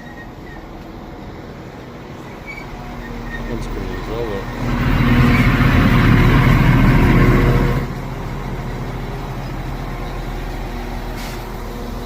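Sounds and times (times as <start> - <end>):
steady train hum: 0.0 - 12.0
train rumbling by: 0.0 - 12.0.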